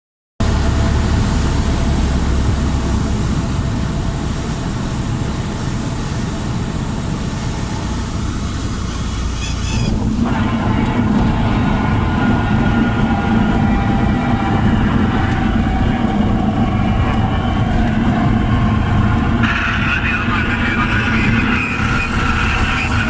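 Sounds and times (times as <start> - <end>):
light aircraft engine running: 0.4 - 23.0.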